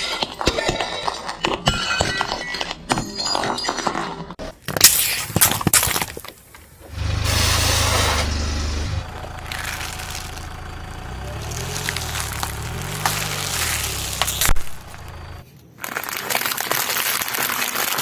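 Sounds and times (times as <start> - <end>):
cracks under car tyre: 4.6 - 18.0
tyre noise: 6.8 - 15.4
car engine running low: 6.9 - 15.4.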